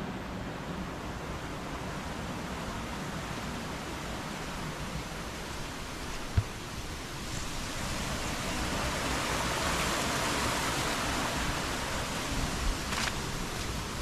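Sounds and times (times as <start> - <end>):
running water rushing: 0.2 - 14.0.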